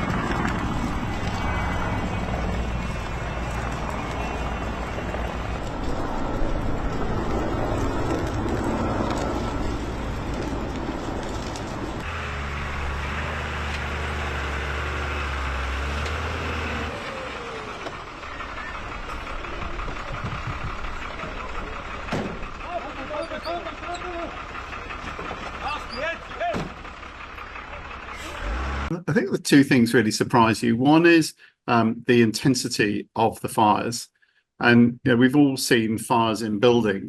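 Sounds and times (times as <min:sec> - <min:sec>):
vehicle engine rumble: 0:00.0 - 0:29.3.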